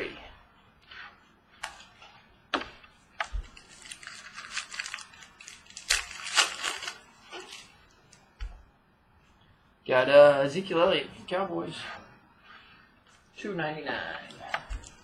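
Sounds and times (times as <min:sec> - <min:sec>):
pack wrappers crinkling: 0:03.3 - 0:07.8.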